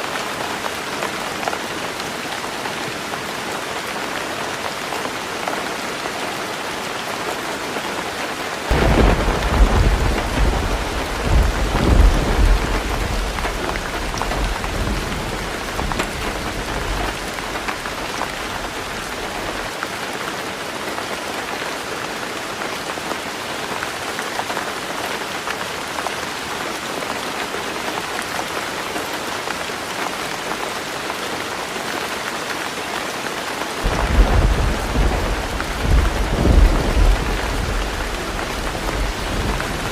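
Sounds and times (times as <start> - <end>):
heavy rain on a tin roof: 0.0 - 39.9
thunder rumbling: 8.7 - 19.7, 33.8 - 39.9.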